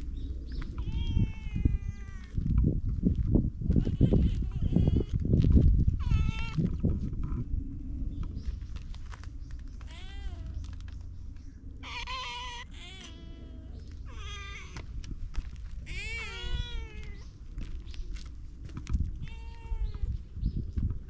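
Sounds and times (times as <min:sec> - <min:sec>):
steady low rumble: 0:00.0 - 0:21.0
cats meowing: 0:00.6 - 0:02.4, 0:03.8 - 0:05.2, 0:06.0 - 0:06.7, 0:09.8 - 0:10.8, 0:11.8 - 0:17.9, 0:19.1 - 0:20.3.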